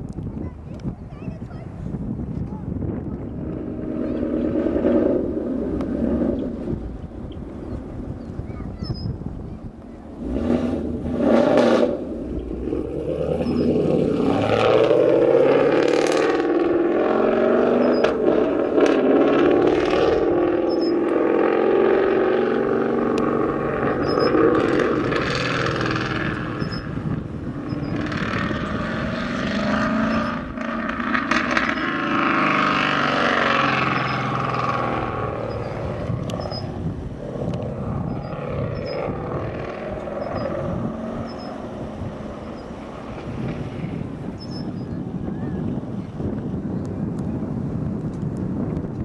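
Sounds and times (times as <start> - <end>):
wind buffeting microphone: 0.0 - 49.0
jet airliner engines: 17.8 - 49.0.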